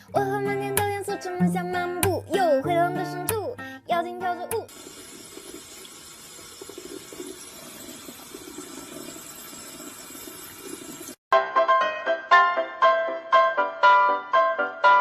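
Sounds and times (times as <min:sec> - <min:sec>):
music: 0:00.0 - 0:04.7, 0:11.3 - 0:15.0
water running: 0:04.5 - 0:11.2.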